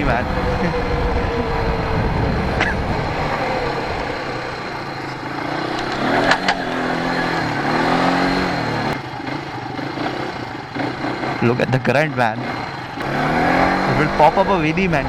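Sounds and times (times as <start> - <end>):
wind rumble on microphone: 0.0 - 7.4
atv engine running: 0.0 - 15.0.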